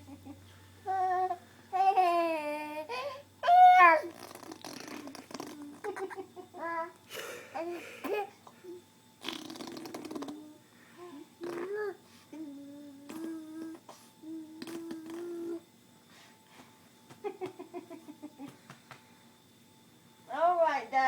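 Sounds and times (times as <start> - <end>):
baby cooing and humming: 0.0 - 15.7
baby blowing raspberries: 3.8 - 6.0, 9.2 - 10.5, 11.4 - 15.6
baby laughing: 5.8 - 6.9, 7.6 - 8.3.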